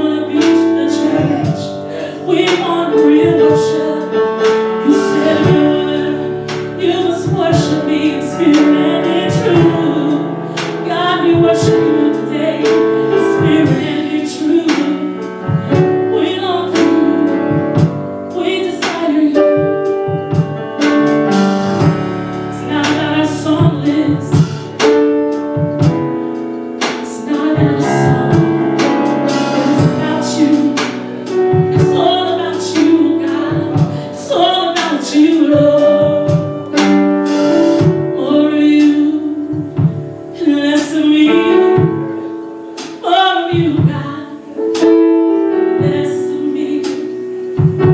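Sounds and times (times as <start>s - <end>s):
voices singing gospel: 0.0s - 20.2s, 26.8s - 39.8s
keyboard accompaniment: 0.0s - 47.9s
steady beat: 18.9s - 34.0s.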